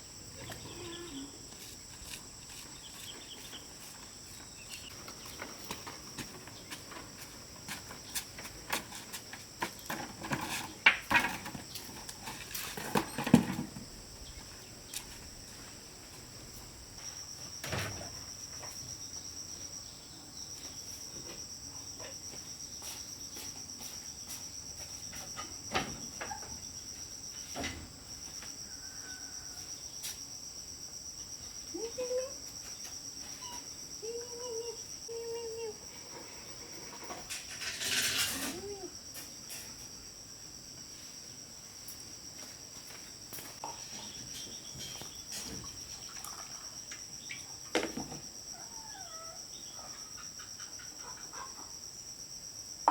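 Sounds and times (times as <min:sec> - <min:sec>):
pulsing insect trill: 0:00.0 - 0:05.7, 0:43.6 - 0:52.9
insects trilling: 0:00.0 - 0:52.9
handling knocks and rustles: 0:01.6 - 0:13.9.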